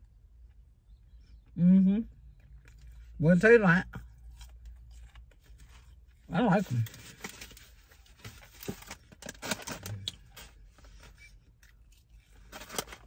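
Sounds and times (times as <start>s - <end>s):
chewing crisp food crunches: 3.9s - 7.1s.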